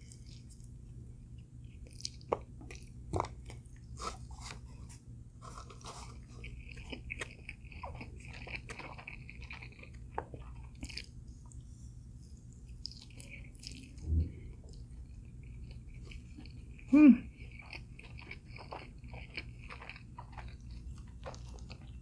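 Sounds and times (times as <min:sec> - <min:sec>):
person crunching crispy food: 0:05.4 - 0:11.2, 0:12.7 - 0:22.0.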